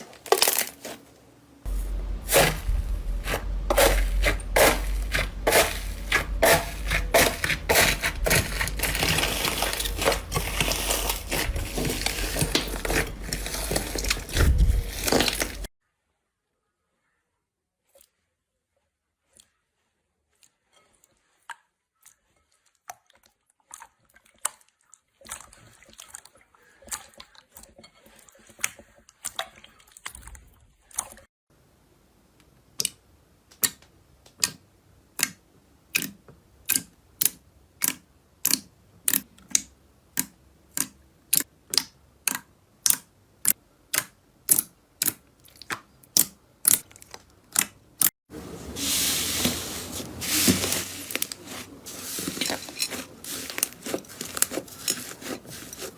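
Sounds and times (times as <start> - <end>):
slime crinkling: 0.0 - 15.7, 48.7 - 55.9
slime clicking and crackling: 35.2 - 48.1.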